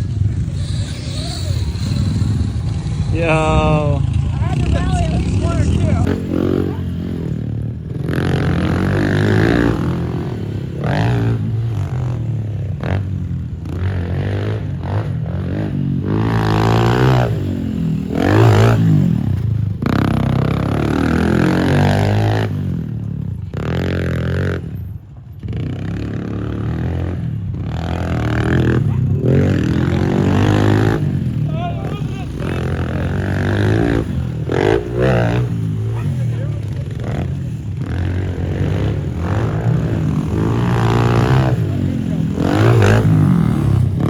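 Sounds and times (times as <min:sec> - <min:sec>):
motorbike engine revving: 0:00.0 - 0:44.0.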